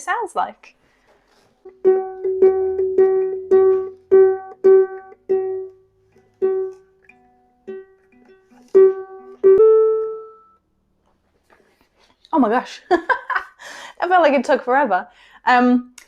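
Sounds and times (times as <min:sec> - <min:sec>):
ukulele string plucked: 0:01.7 - 0:10.6
lower ukulele note: 0:08.6 - 0:10.5.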